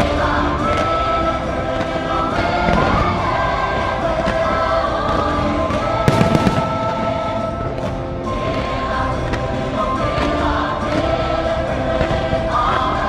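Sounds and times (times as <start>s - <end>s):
choir holding long notes: 0.0s - 13.0s
fireworks bangs and crackles: 5.7s - 8.6s
orchestral music: 6.0s - 9.0s.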